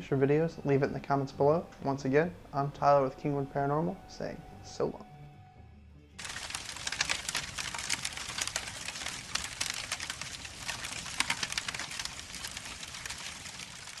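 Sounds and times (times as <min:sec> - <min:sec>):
crackling static: 0:06.2 - 0:14.0.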